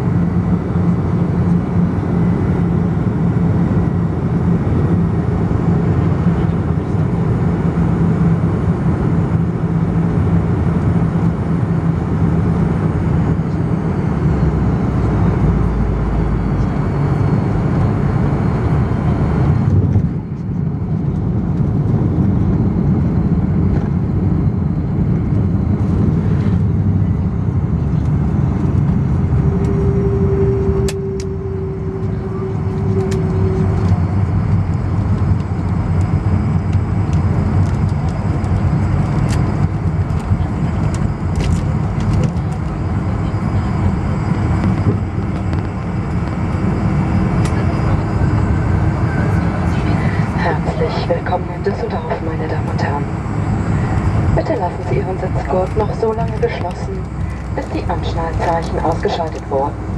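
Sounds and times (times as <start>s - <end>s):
airflow rumble: 0.0s - 59.9s
jet engines: 0.0s - 59.9s
low hum: 0.0s - 59.9s.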